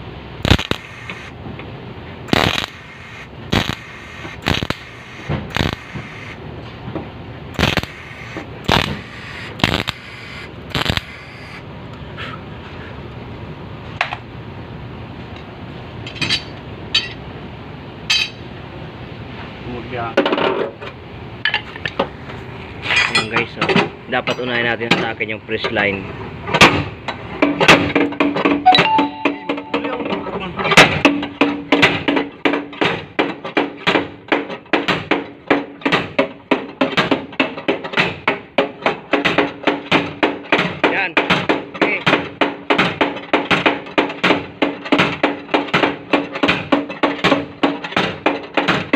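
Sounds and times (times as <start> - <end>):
steady background noise: 0.0 - 48.9
metal tools clinking on sheet metal: 16.0 - 17.2, 18.1 - 18.4, 22.8 - 24.6.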